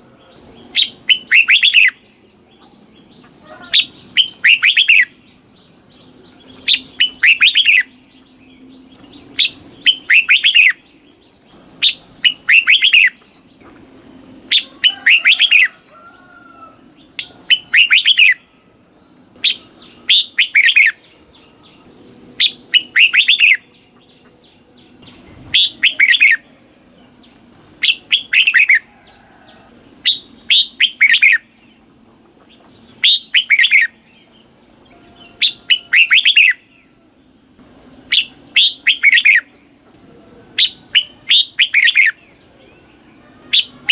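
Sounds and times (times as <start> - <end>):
bulbul singing warbled phrase: 0.0 - 13.4, 16.7 - 18.6, 21.6 - 28.9, 38.0 - 43.9.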